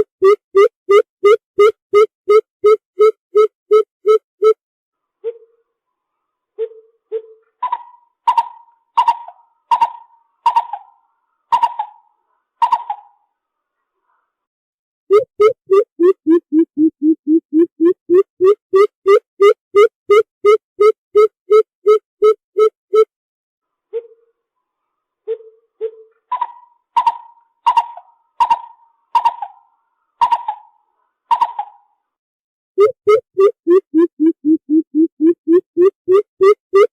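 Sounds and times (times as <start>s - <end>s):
bird calling hollow notes: 15.1s - 23.0s, 32.8s - 36.9s.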